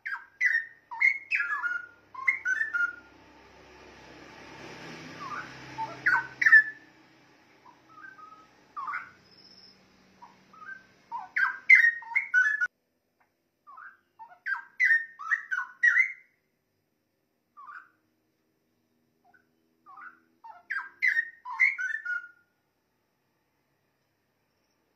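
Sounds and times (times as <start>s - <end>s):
bird singing whistled phrases: 0.0s - 3.1s, 5.2s - 6.8s, 7.9s - 12.7s, 13.7s - 16.4s, 17.6s - 17.9s, 19.9s - 22.4s.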